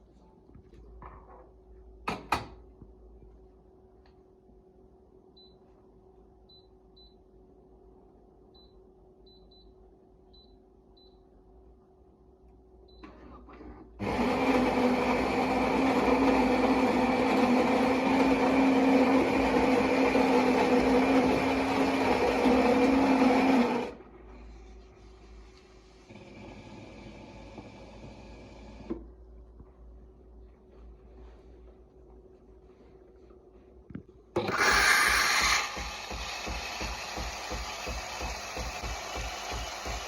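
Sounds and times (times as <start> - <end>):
espresso machine whirring: 14.0 - 24.0, 34.4 - 40.0.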